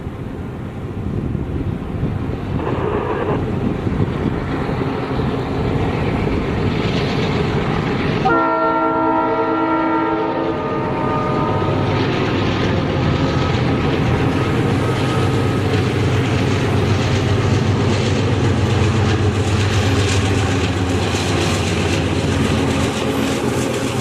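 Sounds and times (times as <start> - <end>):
diesel locomotive rumbling: 0.0 - 24.0
multi-tone train horn: 8.2 - 11.9.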